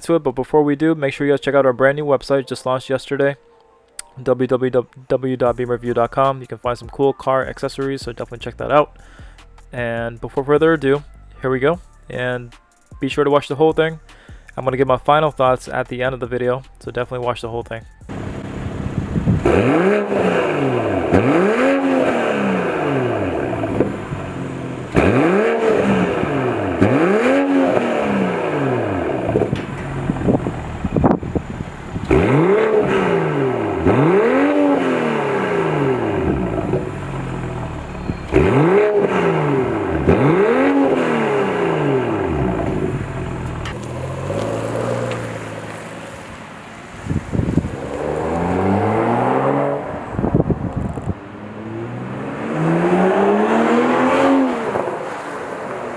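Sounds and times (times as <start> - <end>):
exhaust cracks: 14.0 - 55.9
car engine revving: 18.1 - 55.9.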